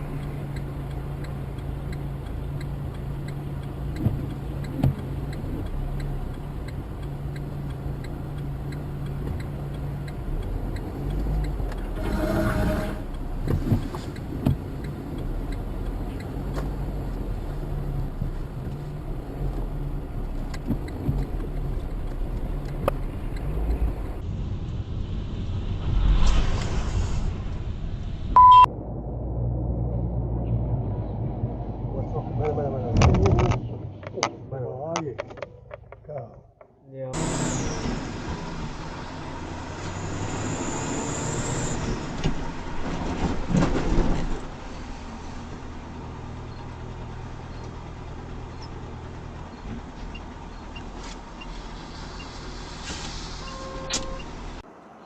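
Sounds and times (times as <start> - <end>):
vehicle engine and road noise: 0.0 - 55.0
rush of noise: 24.2 - 33.5
short high beep: 28.4 - 28.7.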